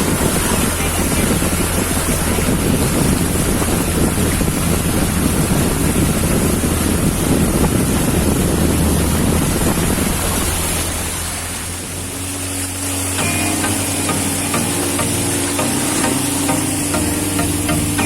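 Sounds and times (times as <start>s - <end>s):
wind buffeting microphone: 0.0s - 12.6s
rushing water: 0.0s - 18.0s
speedboat engine drone: 0.0s - 18.0s.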